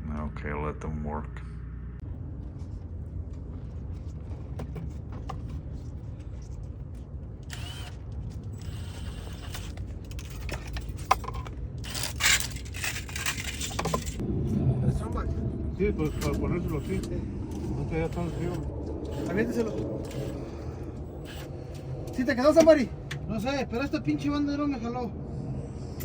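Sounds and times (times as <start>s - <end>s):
steady low rumble: 0.0s - 26.0s
hand tools clicking and scraping: 7.4s - 14.2s, 16.1s - 23.2s.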